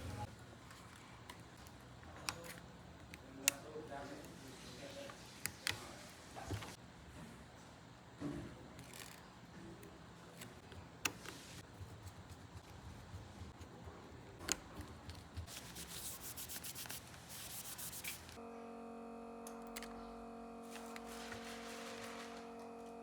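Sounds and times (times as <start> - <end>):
rubbing and scraping on phone: 15.0 - 18.4.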